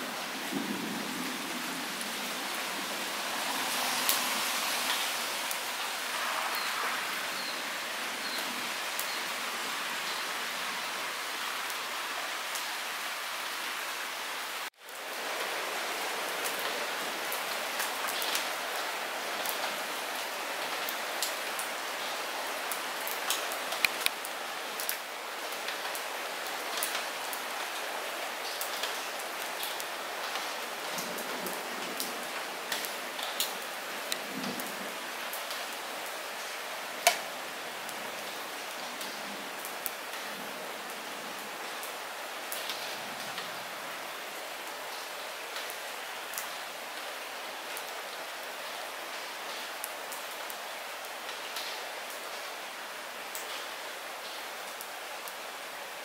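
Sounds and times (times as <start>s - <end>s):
light rain hissing: 0.0s - 56.0s
raindrops ticking: 23.3s - 25.0s.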